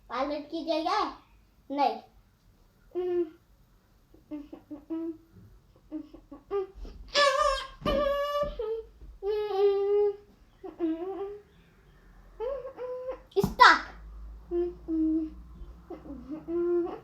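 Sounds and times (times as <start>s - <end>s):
child humming and singing: 12.5s - 17.0s.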